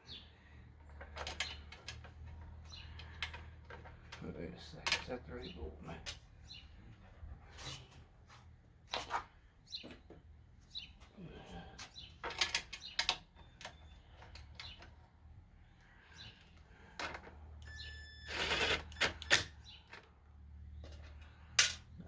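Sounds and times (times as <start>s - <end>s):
cordless impact driver whine: 17.6s - 19.6s
clinks of bolts and tools: 21.6s - 22.0s.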